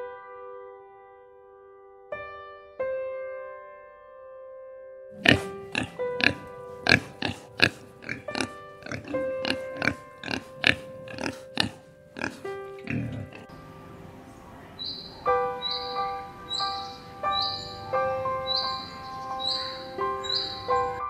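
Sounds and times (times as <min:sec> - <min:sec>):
light piano music: 0:00.0 - 0:21.0
pig grunting: 0:05.2 - 0:13.5.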